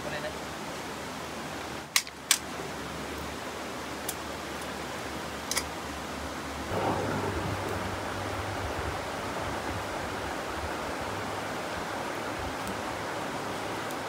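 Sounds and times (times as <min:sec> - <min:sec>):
stream flowing over rocks: 0:00.0 - 0:14.0.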